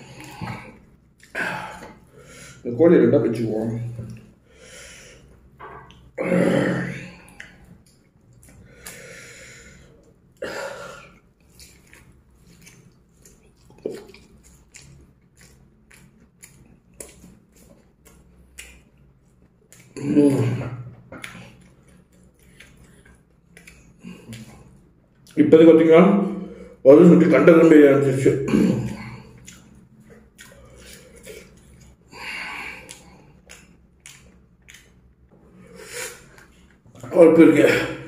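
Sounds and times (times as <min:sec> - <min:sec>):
man chewing with mouth clicks: 0:00.1 - 0:02.1, 0:07.3 - 0:09.0, 0:11.0 - 0:25.4, 0:28.8 - 0:37.1.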